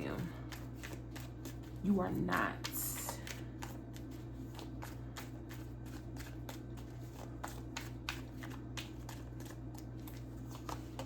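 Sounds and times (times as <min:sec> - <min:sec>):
steady low hum: 0:00.0 - 0:11.0
cards being shuffled: 0:00.2 - 0:11.0.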